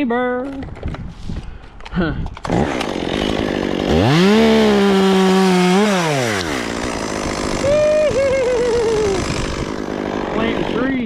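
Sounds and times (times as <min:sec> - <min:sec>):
chainsaw revving: 0:02.4 - 0:11.0.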